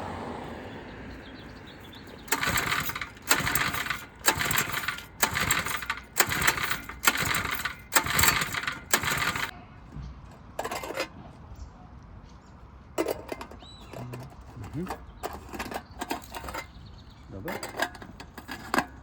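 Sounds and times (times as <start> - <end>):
recoil starter pulls rattling: 1.6 - 9.5, 13.0 - 19.0.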